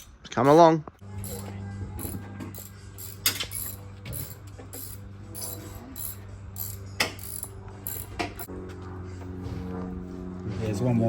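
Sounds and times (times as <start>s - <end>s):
socket ratchet clicking: 1.2s - 8.5s.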